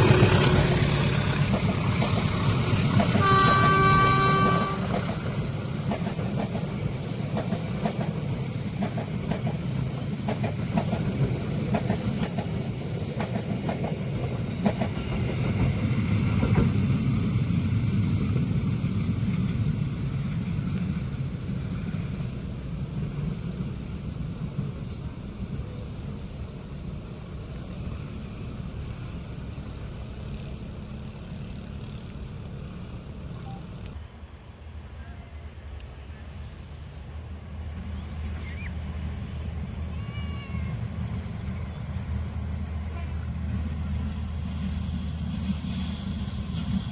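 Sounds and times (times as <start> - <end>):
wheels clacking over rail joints: 0.0 - 21.1
train rumbling past: 0.0 - 46.9.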